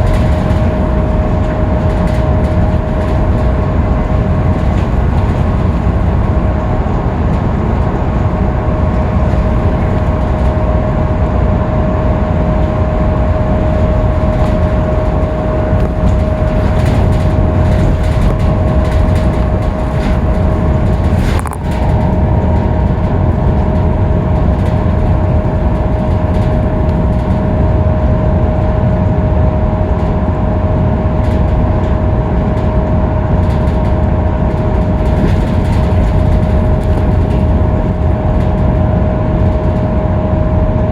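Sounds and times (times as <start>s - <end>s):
bus engine and road rumble: 0.0s - 40.9s
high whine: 0.0s - 40.9s.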